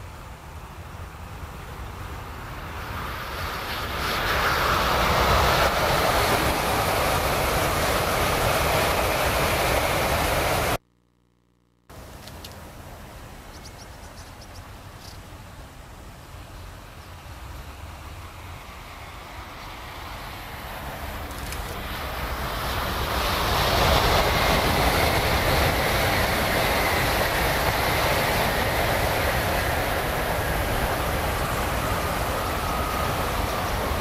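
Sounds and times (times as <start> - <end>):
train rushing past: 1.1 - 10.8, 16.6 - 34.0.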